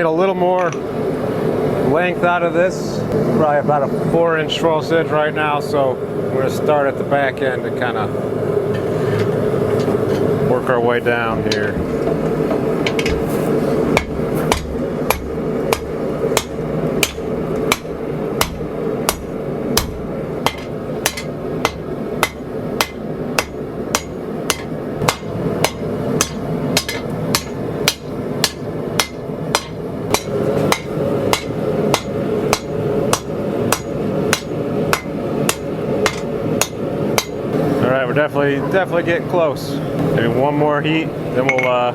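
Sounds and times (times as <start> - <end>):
steady hum: 0.0 - 41.9
hammer striking steel on anvil: 13.9 - 37.4.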